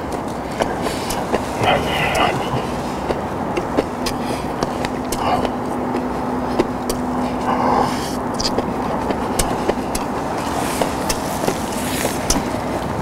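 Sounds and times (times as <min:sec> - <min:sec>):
faint steady hum: 0:00.0 - 0:13.0
low city rumble: 0:00.0 - 0:13.0
mouth clicks: 0:00.6 - 0:10.2.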